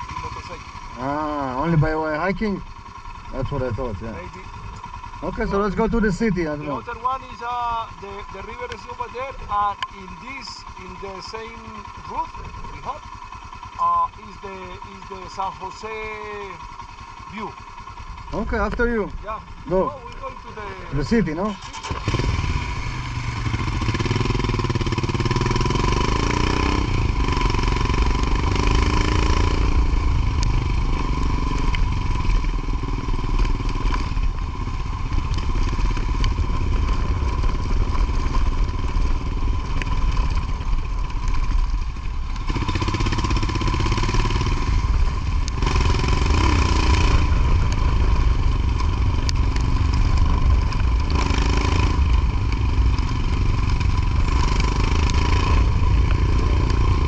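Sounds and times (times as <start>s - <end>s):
heavy low rumble: 0.0s - 13.0s
motorcycle engine: 0.0s - 57.0s.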